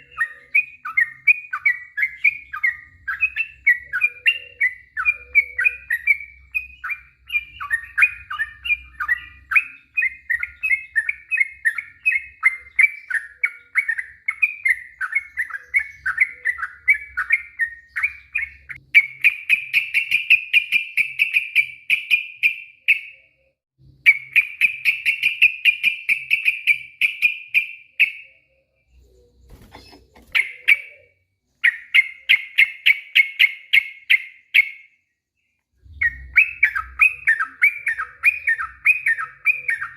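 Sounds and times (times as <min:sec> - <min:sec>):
bulbul singing: 0:00.0 - 0:39.9.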